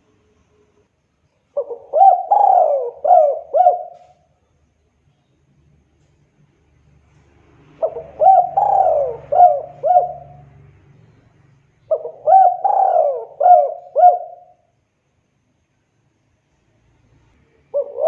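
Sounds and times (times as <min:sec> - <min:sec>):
dove cooing: 0:01.5 - 0:04.2, 0:07.8 - 0:10.6, 0:11.9 - 0:14.6, 0:17.7 - 0:18.0.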